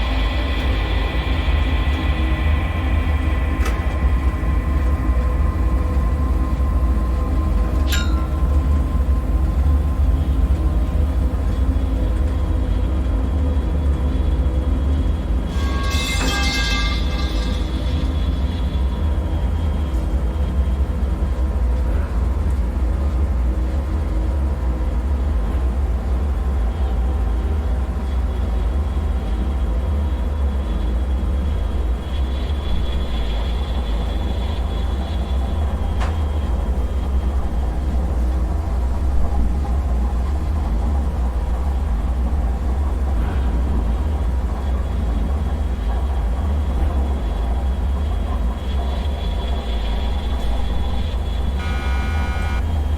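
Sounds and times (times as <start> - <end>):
heavy low rumble: 0.0 - 15.5
faint high whine: 0.0 - 20.4, 29.5 - 52.9.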